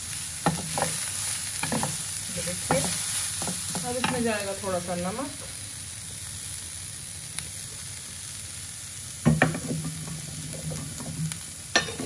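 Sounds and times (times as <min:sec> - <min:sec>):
vegetables sizzling in oil: 0:00.0 - 0:12.0
wooden spatula scraping a pan: 0:00.4 - 0:04.5, 0:09.4 - 0:12.0.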